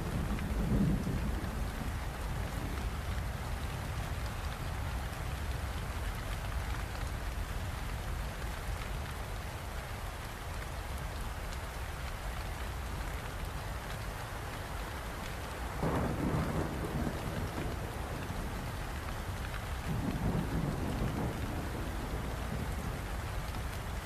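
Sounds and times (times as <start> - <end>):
low thunder rumble: 0.0 - 3.0, 15.8 - 24.0
rain falling: 0.0 - 24.0.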